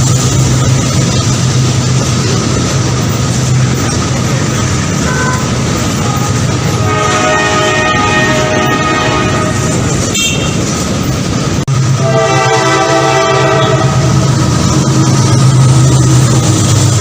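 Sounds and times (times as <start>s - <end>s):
locomotive engine hum: 0.0s - 17.0s
passing train: 0.0s - 17.0s
train horn: 5.0s - 10.6s, 12.0s - 14.3s.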